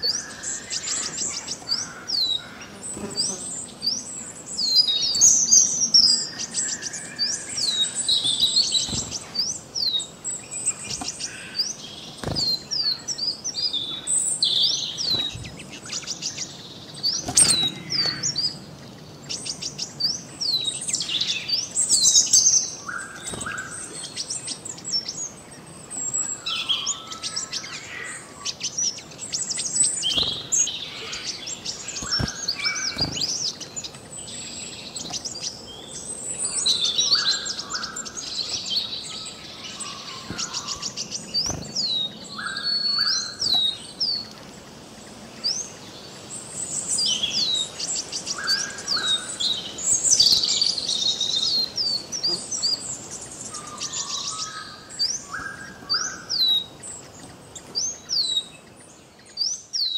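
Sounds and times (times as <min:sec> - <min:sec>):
small birds chirping: 0:00.0 - 0:59.9
twittering trills: 0:35.8 - 0:43.7.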